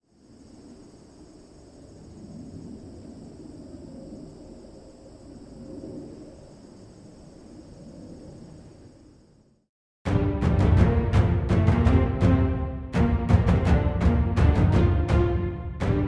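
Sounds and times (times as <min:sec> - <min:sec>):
crickets chirring: 0:00.0 - 0:09.7.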